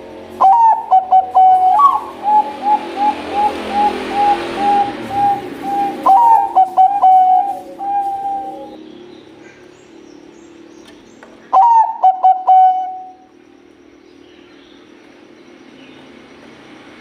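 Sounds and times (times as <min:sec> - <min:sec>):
dove cooing: 0:00.0 - 0:08.8, 0:11.4 - 0:13.3.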